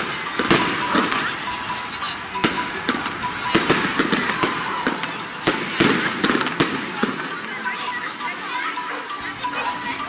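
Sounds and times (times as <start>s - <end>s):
fireworks bangs and crackles: 0.0s - 7.6s.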